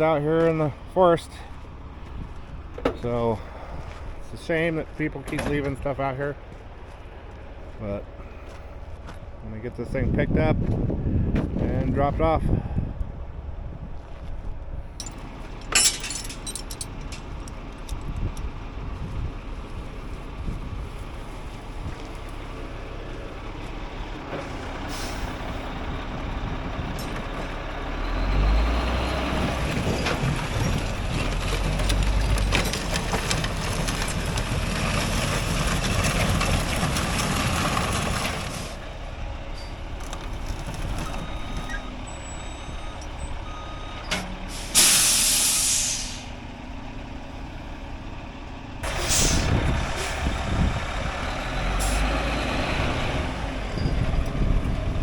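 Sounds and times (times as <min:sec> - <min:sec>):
tow truck engine running: 0:00.0 - 0:55.0
air brakes hissing: 0:24.9 - 0:25.5, 0:44.5 - 0:46.4, 0:48.8 - 0:50.3
reverse alarm beeps: 0:41.2 - 0:44.1.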